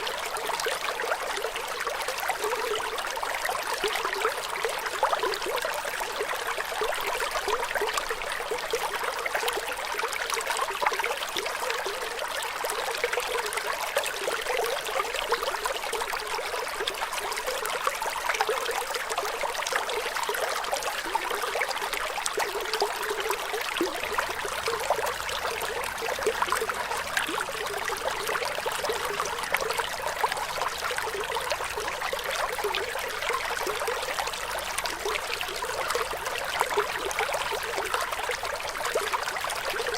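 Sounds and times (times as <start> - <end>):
running water flowing: 0.0 - 10.7.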